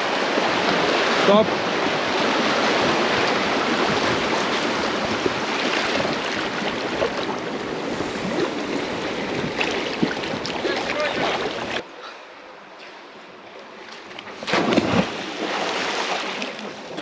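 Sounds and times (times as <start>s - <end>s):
whitewater rushing and splashing: 0.0s - 11.8s, 14.4s - 17.0s.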